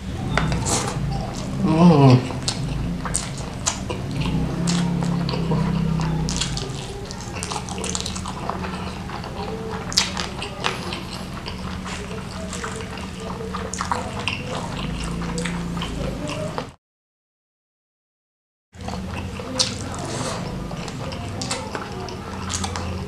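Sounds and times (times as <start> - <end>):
person chewing wetly: 0.2 - 16.8, 18.8 - 23.0.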